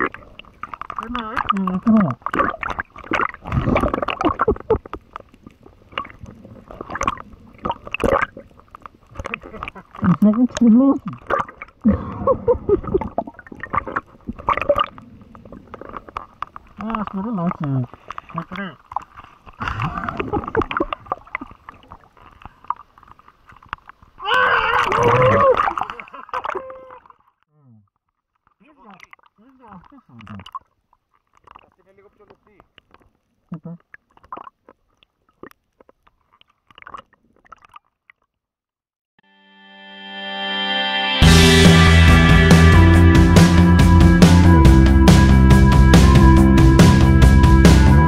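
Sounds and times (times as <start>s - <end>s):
underwater gurgling and bubbling: 0.0s - 24.2s.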